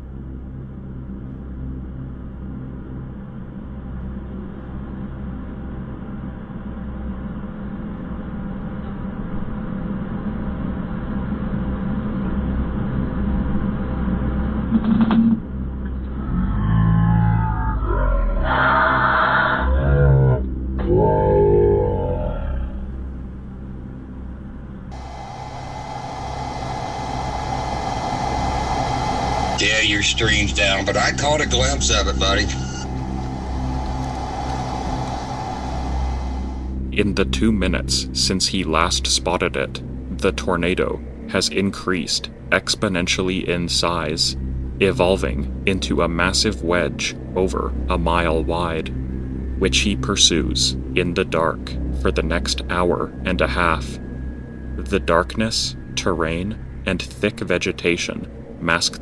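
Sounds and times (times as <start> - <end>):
low hum: 0.0 - 59.0
road noise: 24.9 - 36.8.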